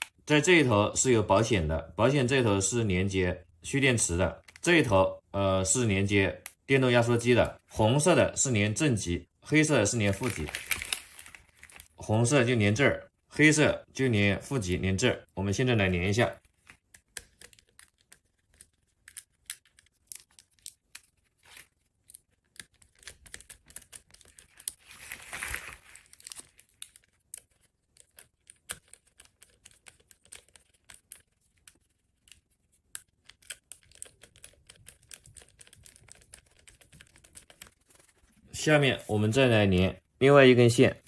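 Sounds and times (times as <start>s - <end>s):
cable rustling: 4.4s - 4.9s, 9.9s - 12.0s, 16.2s - 39.2s.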